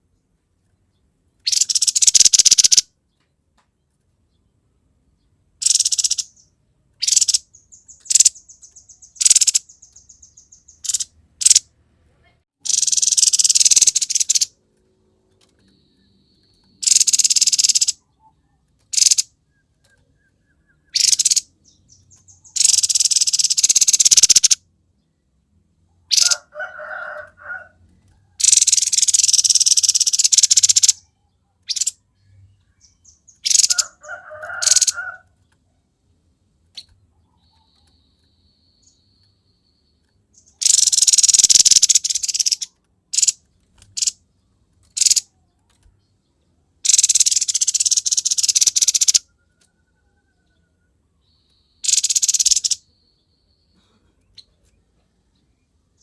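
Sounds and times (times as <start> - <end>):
bird chattering calls: 1.4 - 2.8, 5.6 - 11.6, 12.6 - 14.6, 16.8 - 19.3, 20.8 - 24.6, 26.1 - 26.5, 28.4 - 31.1, 31.7 - 32.0, 32.8 - 35.2, 40.4 - 44.2, 44.9 - 45.3, 46.8 - 49.3, 51.8 - 52.9
bird harsh hissing rattles: 1.5 - 2.8, 12.7 - 14.5, 16.8 - 18.0, 28.4 - 31.0, 40.6 - 43.4, 46.8 - 49.2, 51.8 - 52.8.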